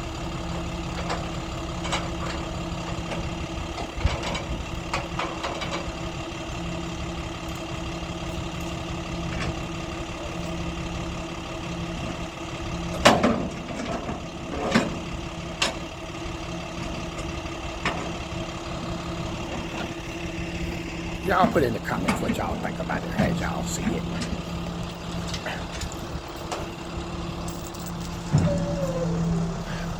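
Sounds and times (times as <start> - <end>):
truck engine idling: 0.0 - 29.9.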